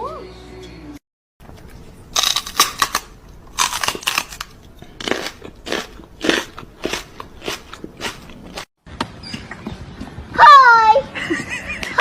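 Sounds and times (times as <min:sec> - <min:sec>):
crunchy food being chewed: 0:01.4 - 0:08.7.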